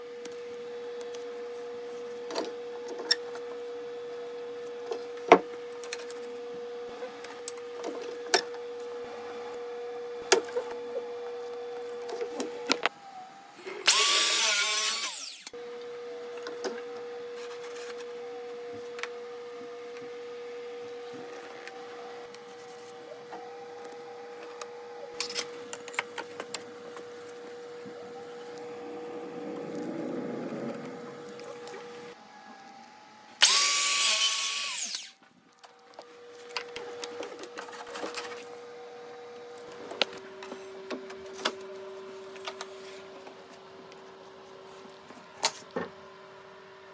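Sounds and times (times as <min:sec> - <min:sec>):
power tool burst: 0:13.7 - 0:15.5, 0:33.4 - 0:35.2
steady hum: 0:25.4 - 0:32.2.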